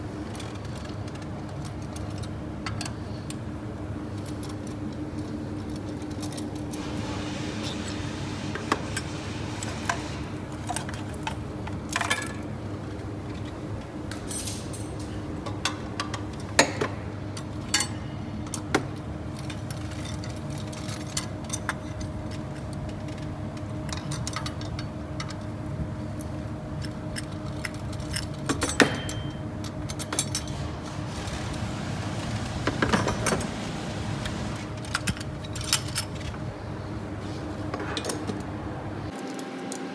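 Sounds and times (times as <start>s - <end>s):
metal tools clinking: 13.4s - 15.3s, 27.1s - 36.4s.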